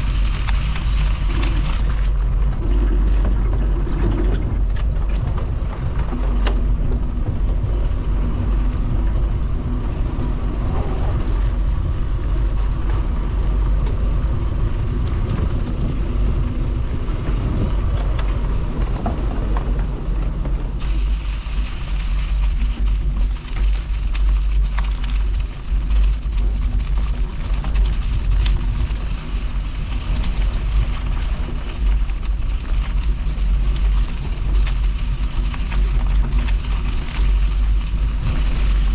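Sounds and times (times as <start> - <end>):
bicycle tyre noise: 0.0 - 38.9
small rattles and ticks: 0.0 - 38.9
wind buffeting microphone: 0.0 - 38.9.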